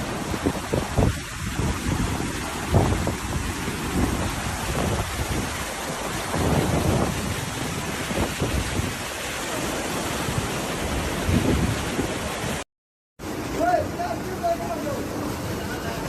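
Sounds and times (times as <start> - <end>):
pouring rain: 0.0 - 12.6, 13.2 - 16.0
running water: 0.0 - 12.6, 13.2 - 16.0
wind on microphone: 0.0 - 12.6.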